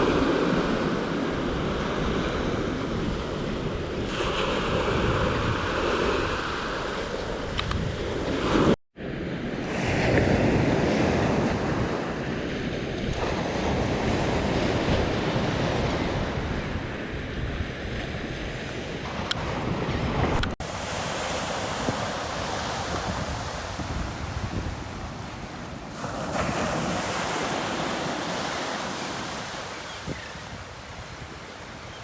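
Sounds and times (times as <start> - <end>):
wind rumbling on microphone: 11.5 - 32.0
ocean waves breaking on beach: 19.1 - 32.0.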